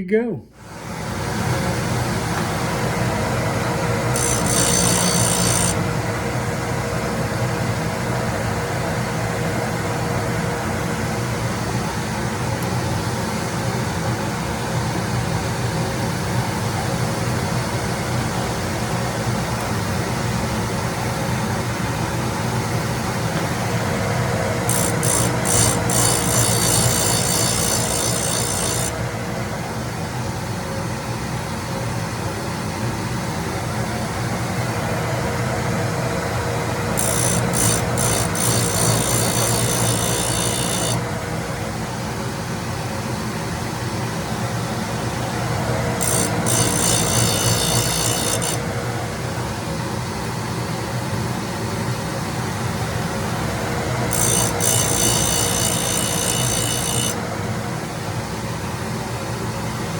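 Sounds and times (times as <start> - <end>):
grinder humming: 0.6 - 8.6, 21.4 - 29.8, 36.1 - 42.2, 44.9 - 49.6, 53.1 - 57.3
high hiss of grinding wheel: 4.1 - 5.8, 24.7 - 29.0, 37.0 - 41.0, 46.0 - 48.6, 54.1 - 57.2.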